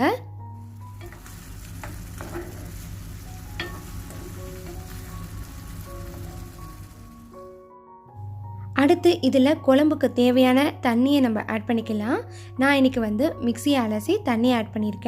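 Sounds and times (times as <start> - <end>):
prawns sizzling in a pan: 0.6 - 7.6.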